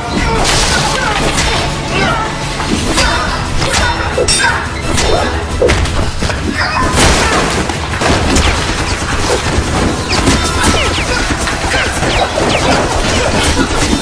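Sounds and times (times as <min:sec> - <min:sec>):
rapid gunfire: 0:05.6 - 0:14.0.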